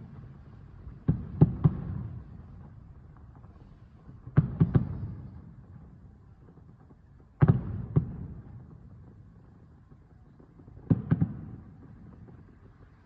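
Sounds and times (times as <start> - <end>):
distant firework booms with echo: 0.0 - 2.8, 4.2 - 5.9, 7.4 - 9.2, 10.6 - 12.6.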